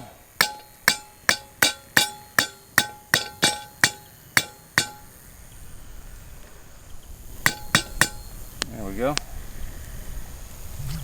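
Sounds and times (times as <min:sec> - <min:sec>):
metal grill strikes: 0:00.0 - 0:05.4, 0:07.4 - 0:08.5.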